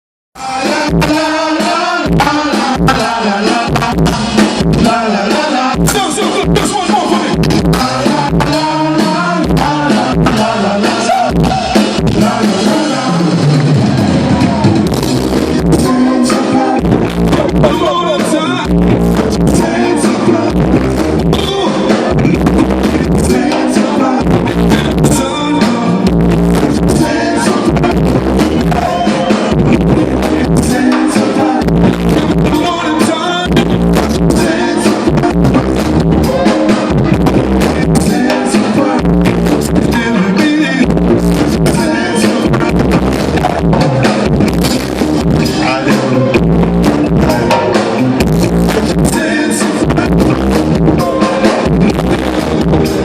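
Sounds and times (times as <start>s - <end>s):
person singing: 0.4s - 14.8s, 15.4s - 44.2s, 45.4s - 52.9s
bass guitar: 0.4s - 53.0s
drum kit: 0.4s - 53.0s
guitar: 0.4s - 53.0s
live band music: 0.4s - 53.0s.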